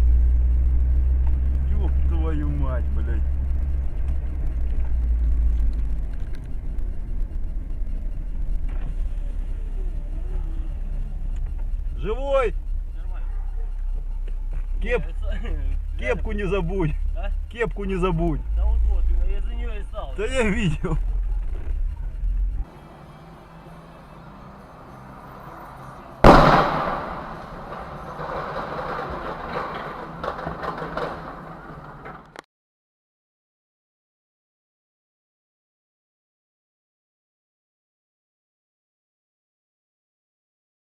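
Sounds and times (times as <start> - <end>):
car and road rumble: 0.0 - 32.5
vehicle crash impact: 23.7 - 32.4
noisy clatter: 26.2 - 32.4.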